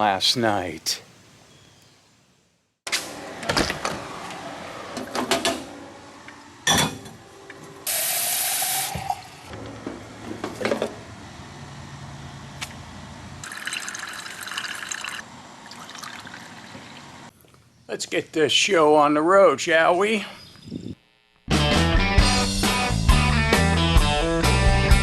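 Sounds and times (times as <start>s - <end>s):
tap water filling container: 13.4s - 17.0s.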